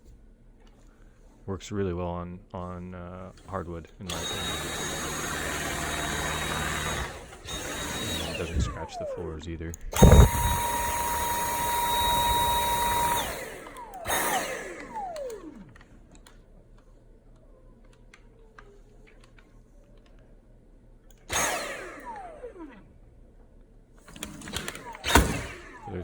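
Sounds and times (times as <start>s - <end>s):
vacuum motor whining: 4.1s - 20.1s, 21.1s - 23.0s, 24.0s - 26.0s.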